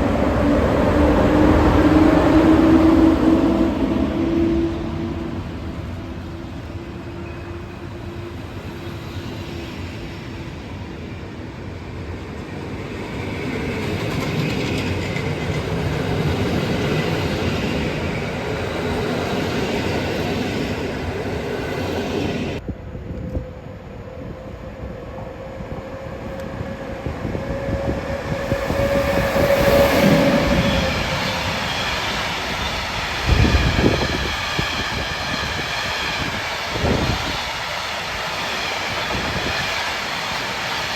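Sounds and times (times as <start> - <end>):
train wheel rumble: 0.0 - 40.9
train whine: 0.0 - 40.9.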